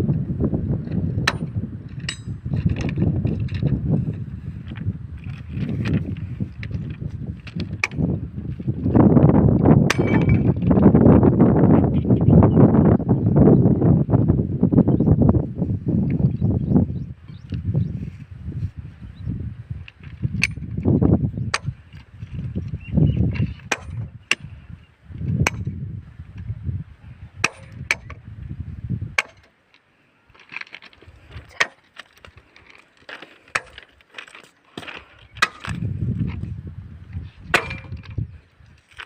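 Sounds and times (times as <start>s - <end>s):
low rumble in gusts: 0.0s - 29.2s, 35.3s - 38.8s
tools clinking on railway track: 1.3s - 3.4s.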